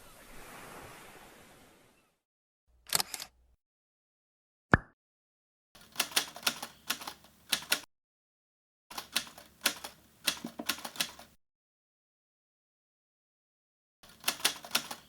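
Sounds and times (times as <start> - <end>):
rapid clicking taps: 9.0 - 11.3.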